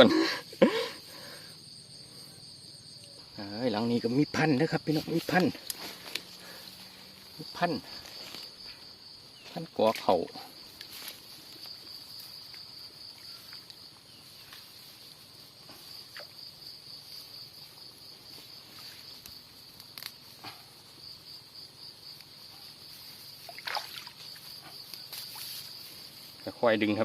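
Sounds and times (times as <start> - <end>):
insects trilling: 0.0 - 27.0
faint water splashes: 23.4 - 25.5.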